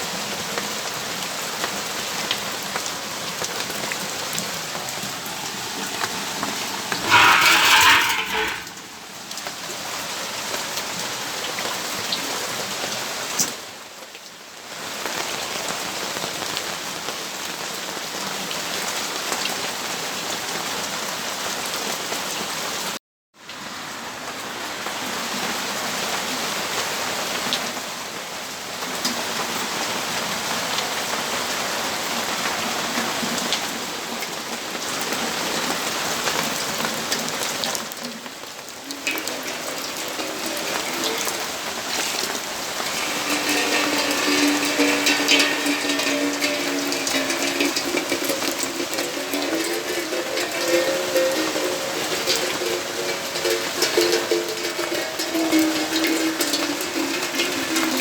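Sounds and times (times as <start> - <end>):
steady rainfall: 0.0 - 58.0
raindrops ticking on surfaces: 10.3 - 20.8, 33.0 - 58.0.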